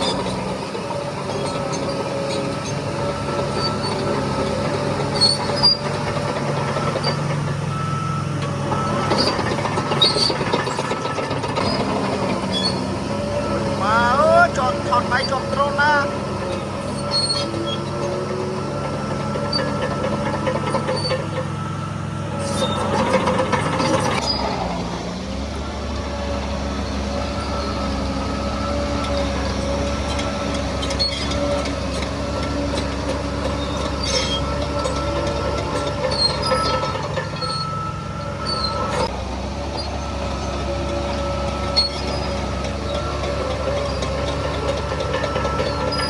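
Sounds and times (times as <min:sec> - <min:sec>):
bulldozer diesel engine whining: 0:00.0 - 0:46.0
short high squeaks and clicks: 0:05.0 - 0:06.0, 0:09.0 - 0:13.0, 0:16.8 - 0:18.1, 0:22.4 - 0:24.5, 0:30.1 - 0:31.8, 0:33.5 - 0:39.1, 0:41.7 - 0:46.0.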